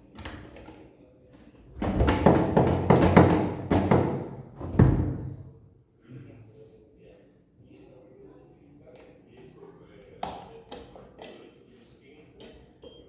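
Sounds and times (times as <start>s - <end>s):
heavy knocks on metal parts: 1.8s - 5.4s.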